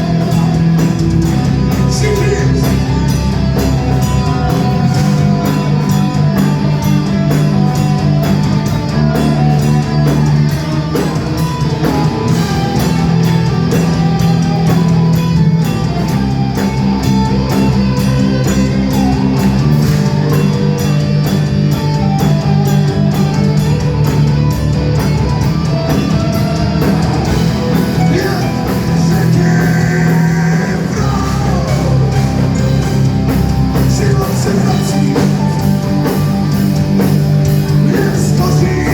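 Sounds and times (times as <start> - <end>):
drum kit beat: 0.0 - 38.9
electric guitars: 0.0 - 38.9
person singing: 1.6 - 6.8, 27.7 - 33.0, 33.6 - 35.8, 37.7 - 38.9.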